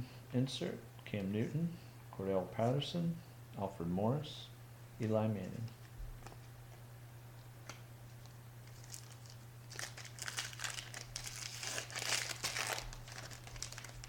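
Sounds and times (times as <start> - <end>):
low electrical hum: 0.0 - 14.0
plastic foil wrapper crackling: 8.6 - 14.0.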